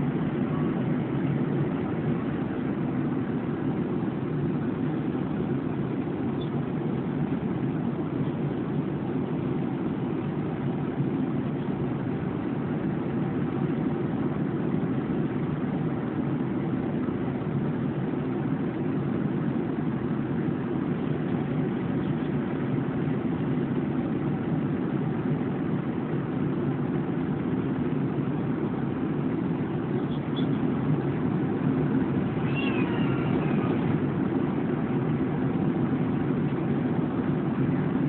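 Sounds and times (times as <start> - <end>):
airliner cabin drone: 0.0 - 38.0.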